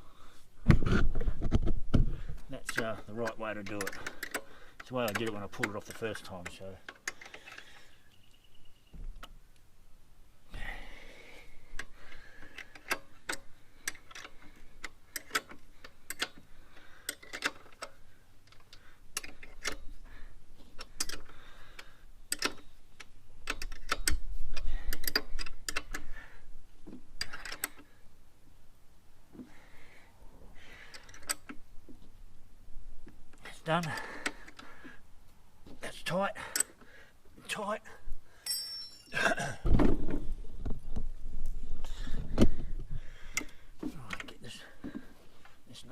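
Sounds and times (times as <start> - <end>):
ratchet wrench clicking: 20.8 - 26.0.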